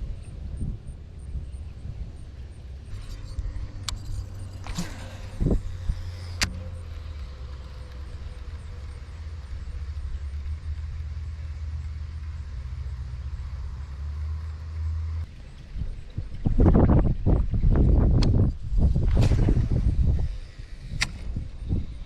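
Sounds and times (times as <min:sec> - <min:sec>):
wind rumbling on microphone: 0:00.0 - 0:22.0
sharp click: 0:21.0 - 0:21.3.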